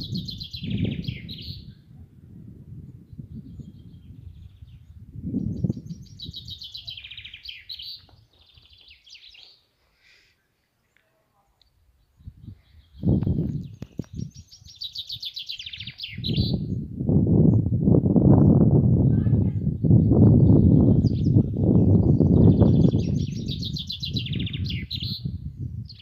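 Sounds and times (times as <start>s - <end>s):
songbird trilling: 0.0s - 1.7s, 3.4s - 9.6s, 12.1s - 16.8s, 20.5s - 26.0s.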